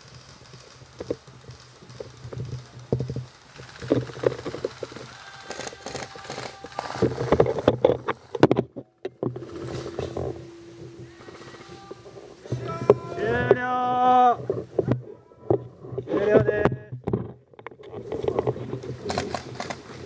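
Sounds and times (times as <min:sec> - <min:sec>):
rifle clicking and rattling: 0:00.0 - 0:12.2, 0:17.1 - 0:20.0.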